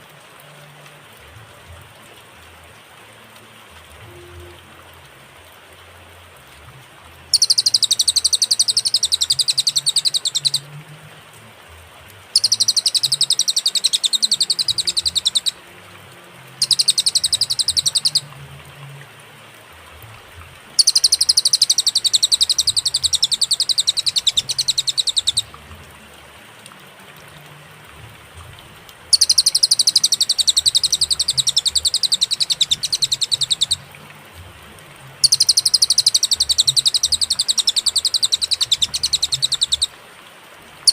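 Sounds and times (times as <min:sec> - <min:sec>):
faint hiss: 0:00.0 - 0:40.9
bird trilling: 0:07.3 - 0:10.7, 0:12.3 - 0:15.6, 0:16.5 - 0:18.3, 0:20.8 - 0:25.6, 0:29.1 - 0:33.9, 0:35.2 - 0:39.9.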